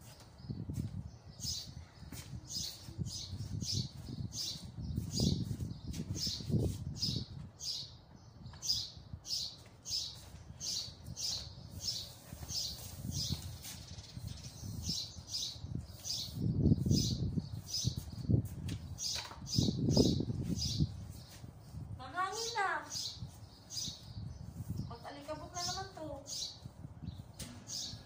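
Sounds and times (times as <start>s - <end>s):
small bird chirping: 0.1s - 28.0s
broom sweeping tiled floor: 3.9s - 7.2s, 9.6s - 19.1s, 20.4s - 22.5s.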